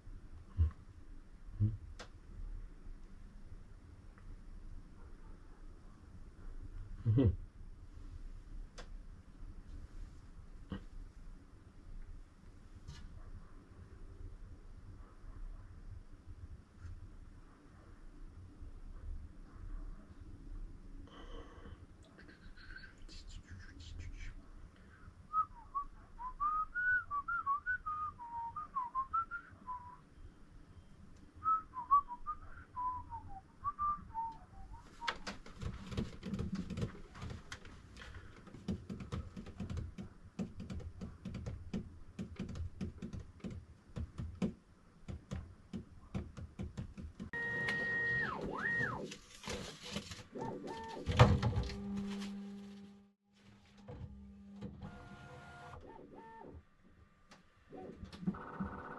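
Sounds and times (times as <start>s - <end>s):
low steady hum: 0.0s - 58.9s
person whistling a tune: 25.3s - 30.0s
clicking and knocking of parts: 35.1s - 47.3s.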